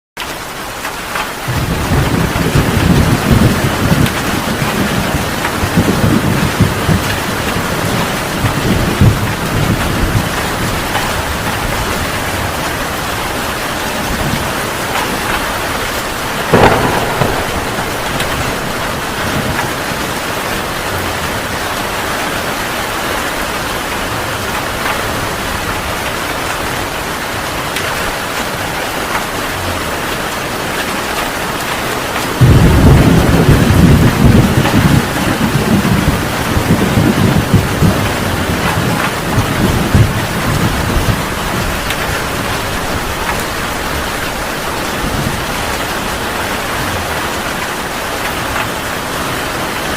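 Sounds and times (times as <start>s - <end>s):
heavy rain: 0.2s - 49.9s
thunder rumbling: 1.5s - 24.2s, 32.2s - 47.4s
sharp thunder crack: 16.4s - 21.1s, 32.4s - 42.2s.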